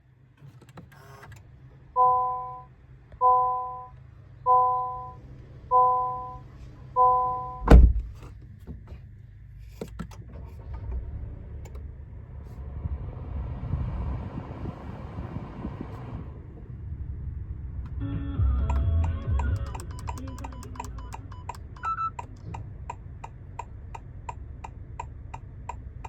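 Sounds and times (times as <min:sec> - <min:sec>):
car engine starting and running: 0:00.0 - 0:26.0
car warning chime: 0:02.0 - 0:06.4, 0:07.0 - 0:07.7, 0:18.0 - 0:22.3
car door shutting: 0:07.5 - 0:09.0.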